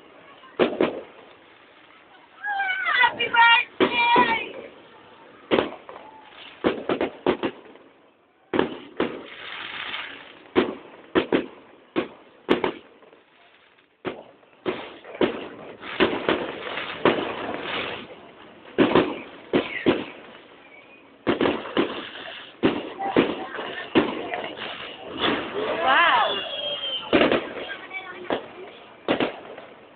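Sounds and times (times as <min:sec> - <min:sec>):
fireworks bangs and pops: 0:00.0 - 0:29.9
fireworks crackling: 0:00.0 - 0:29.9.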